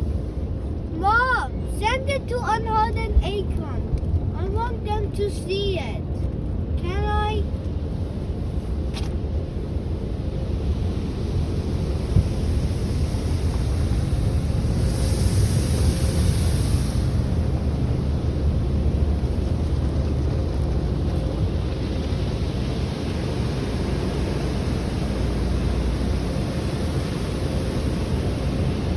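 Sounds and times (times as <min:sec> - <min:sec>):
car wash machinery rumbling: 0:00.0 - 0:28.9
water spray hissing: 0:12.0 - 0:17.6.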